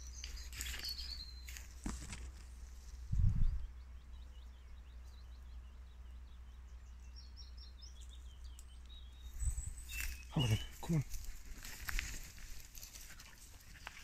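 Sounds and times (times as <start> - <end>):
faint bird chirps: 0.0 - 1.8, 2.8 - 11.8
steady low rumble: 2.4 - 10.0.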